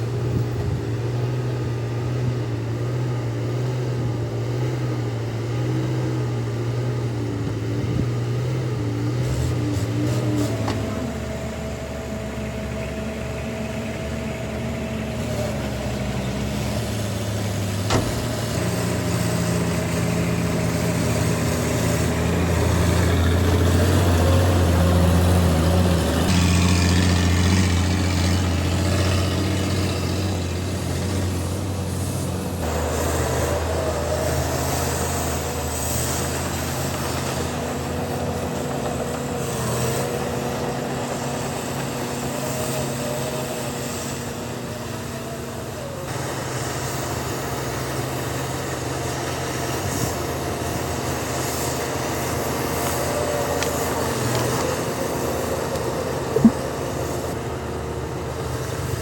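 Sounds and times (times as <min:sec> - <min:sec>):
diesel machinery engines: 0:00.0 - 0:59.0.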